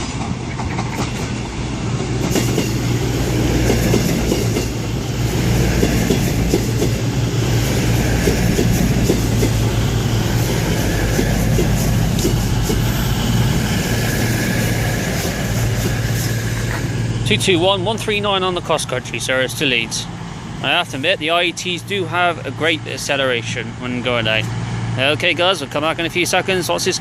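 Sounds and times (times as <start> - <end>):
wheels clicking over rail joints: 0.0 - 18.4
train engine drone: 0.0 - 27.0.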